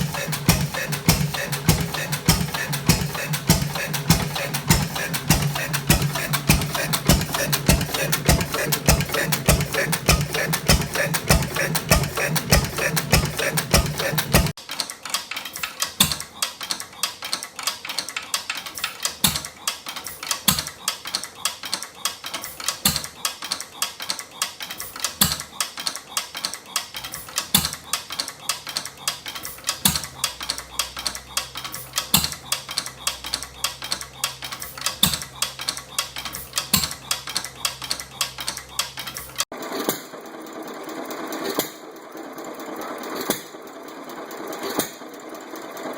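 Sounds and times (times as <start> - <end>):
loud engine firing: 0.0 - 14.6
old engine clattering and knocking: 0.0 - 14.6.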